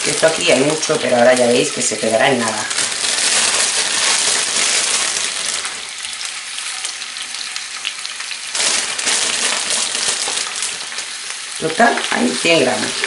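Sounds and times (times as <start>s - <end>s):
leaves sizzling in hot oil: 0.0s - 13.0s.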